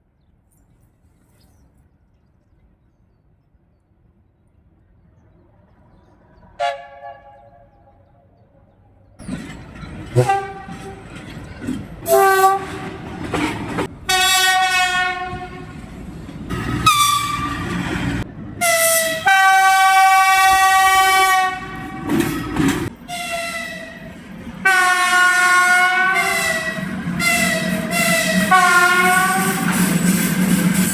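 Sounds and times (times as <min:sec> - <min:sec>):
passing train rumble: 0:02.6 - 0:30.9
locomotive horn blasts: 0:06.6 - 0:07.8, 0:10.1 - 0:11.0, 0:12.0 - 0:13.0, 0:14.0 - 0:15.7, 0:16.8 - 0:17.7, 0:18.6 - 0:22.2, 0:24.6 - 0:29.8.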